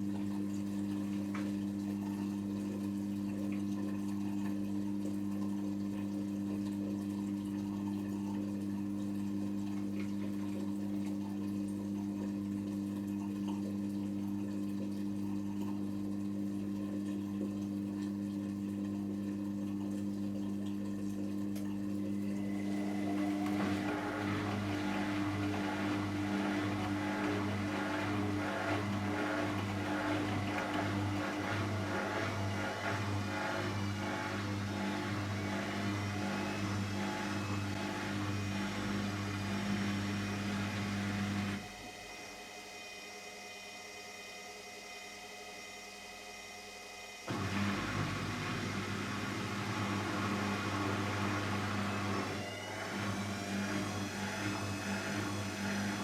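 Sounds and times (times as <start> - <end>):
water running and trickling: 0.0 - 41.6
washing machine electrical hum: 0.0 - 56.0.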